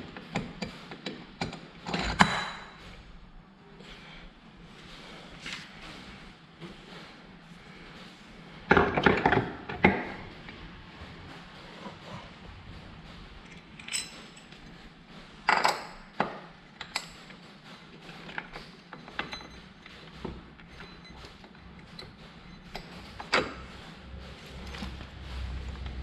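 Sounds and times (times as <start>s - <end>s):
metal parts and tools clinking: 1.4s - 2.8s, 13.4s - 14.8s.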